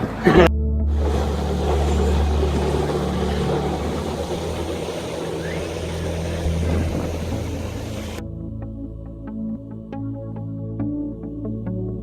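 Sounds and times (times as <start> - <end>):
train rumbling past: 0.0 - 8.2
electronic background music: 0.0 - 12.0.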